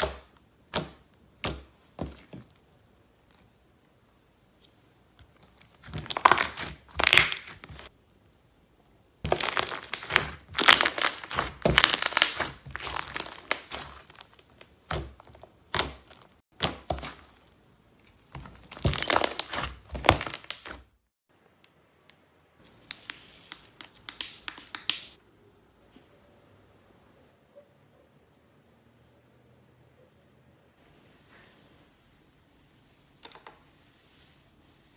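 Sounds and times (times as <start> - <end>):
slime crackling and popping: 5.3 - 7.9, 9.3 - 17.5, 18.3 - 20.9.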